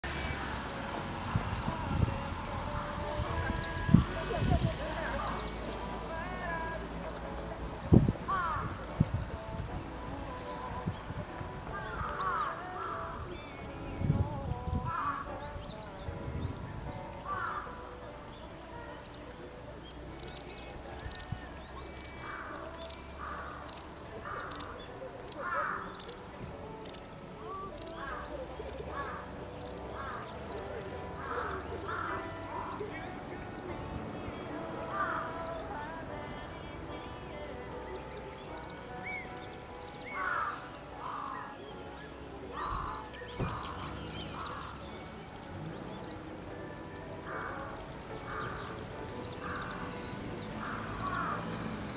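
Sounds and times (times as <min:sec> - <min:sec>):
harsh low bird calls: 0:00.0 - 0:09.5, 0:10.5 - 0:16.6, 0:17.2 - 0:19.2, 0:19.8 - 0:37.3, 0:38.2 - 0:51.9
birds chirping: 0:00.0 - 0:51.9
bird calling harshly: 0:26.8 - 0:33.0, 0:39.0 - 0:41.6, 0:49.4 - 0:51.5.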